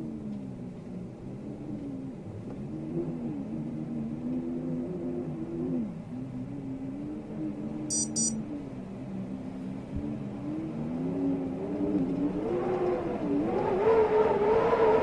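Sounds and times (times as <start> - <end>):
short high beeps: 7.9 - 8.4.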